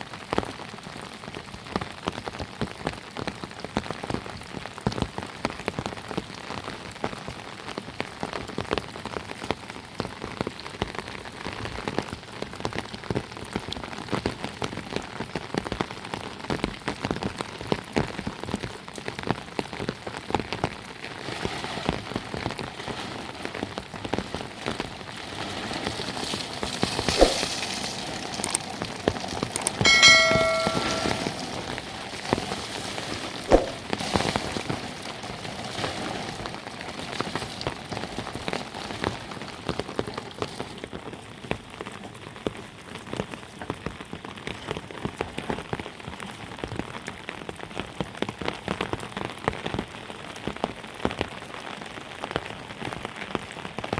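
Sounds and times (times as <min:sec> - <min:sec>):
heavy rain pattering: 0:00.0 - 0:53.9
brief ringing sound: 0:29.8 - 0:31.4.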